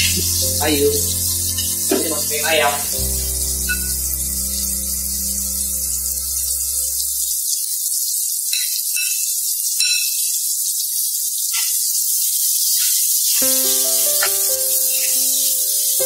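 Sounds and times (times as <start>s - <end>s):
background music: 0.0s - 7.4s, 13.4s - 16.0s
onions sizzling in butter: 0.0s - 16.0s.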